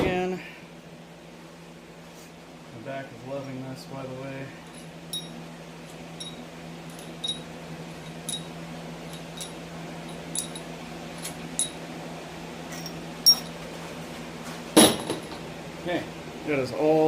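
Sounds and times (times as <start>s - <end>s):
shop fan humming: 0.0s - 17.0s
light metallic clinks: 4.7s - 5.4s, 6.2s - 11.8s, 12.8s - 13.6s.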